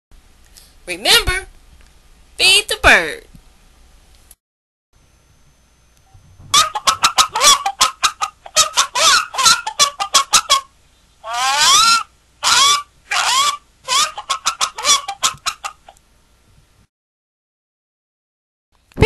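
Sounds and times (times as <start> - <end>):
chicken clucking: 6.5 - 16.0
chicken squawks: 6.5 - 16.0.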